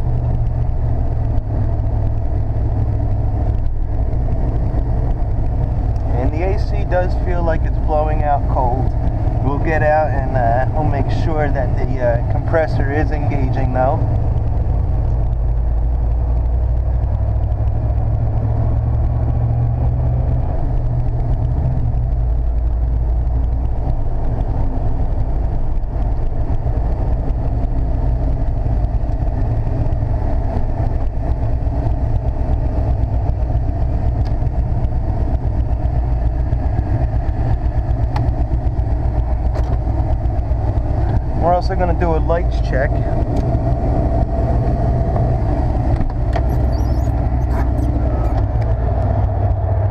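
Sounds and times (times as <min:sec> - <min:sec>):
pickup truck engine idling: 0:33.6 - 0:49.9.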